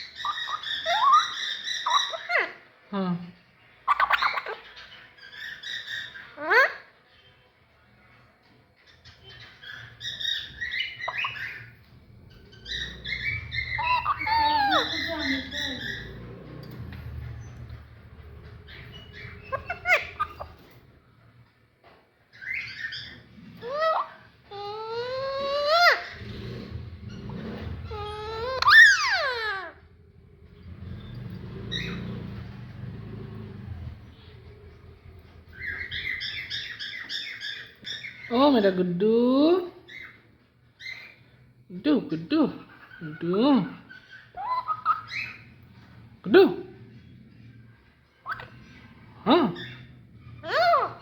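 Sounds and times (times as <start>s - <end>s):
parakeet chattering: 0.0s - 2.6s, 3.8s - 6.9s, 9.2s - 20.8s, 22.4s - 29.8s, 42.3s - 45.6s, 47.4s - 51.0s
low rumble: 11.5s - 20.6s.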